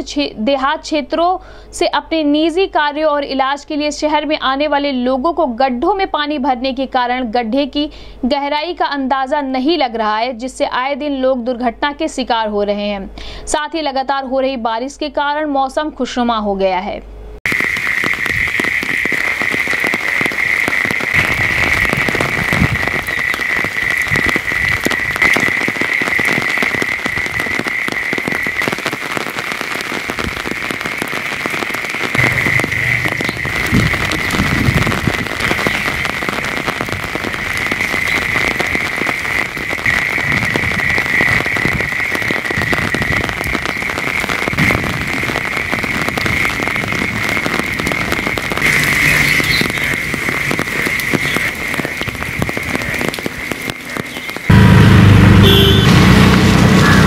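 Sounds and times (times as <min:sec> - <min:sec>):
heavy rain on leaves and water: 0:17.5 - 0:57.0
high-pitched drone: 0:32.2 - 0:34.5, 0:54.5 - 0:57.0.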